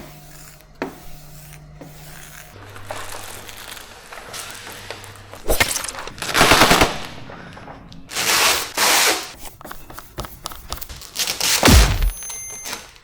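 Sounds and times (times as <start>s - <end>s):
plastic film crackling: 2.5s - 9.4s, 10.7s - 11.8s.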